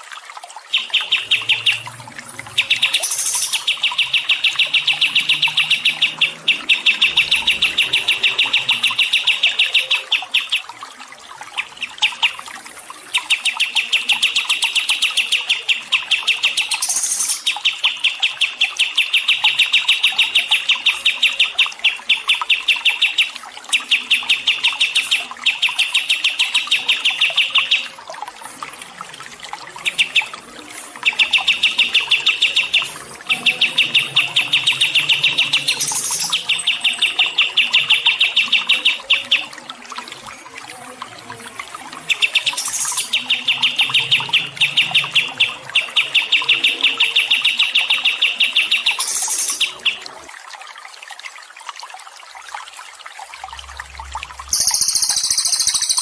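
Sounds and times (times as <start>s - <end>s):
songbird trilling: 0.8s - 10.6s, 31.2s - 39.4s, 54.5s - 56.0s.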